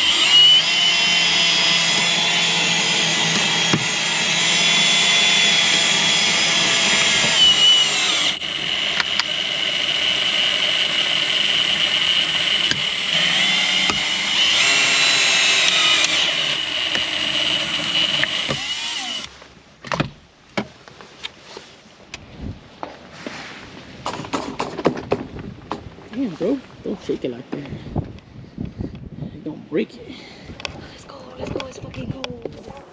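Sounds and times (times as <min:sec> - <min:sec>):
power tool motor whining: 0:00.0 - 0:19.3
sharp clicks: 0:12.6 - 0:17.2.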